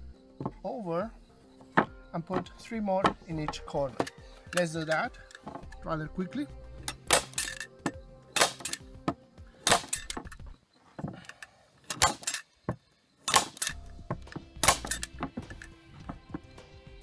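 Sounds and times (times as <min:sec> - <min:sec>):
tool handling clicks: 0:02.4 - 0:05.9, 0:06.8 - 0:12.6, 0:13.3 - 0:15.8
staple gun firing: 0:06.9 - 0:07.6, 0:08.4 - 0:08.8, 0:09.6 - 0:10.3, 0:11.9 - 0:12.4, 0:13.3 - 0:13.8, 0:14.6 - 0:15.2.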